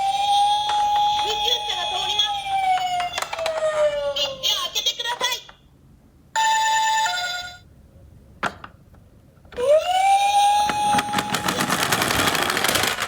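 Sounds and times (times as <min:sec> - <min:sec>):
toy electronic siren wailing: 0:00.0 - 0:04.6, 0:09.6 - 0:11.8.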